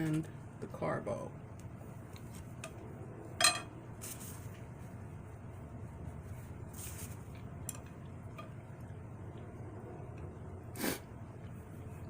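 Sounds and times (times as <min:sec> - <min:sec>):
low steady hum: 0:00.0 - 0:12.0
quiet eating sounds: 0:01.6 - 0:02.9, 0:04.4 - 0:12.0.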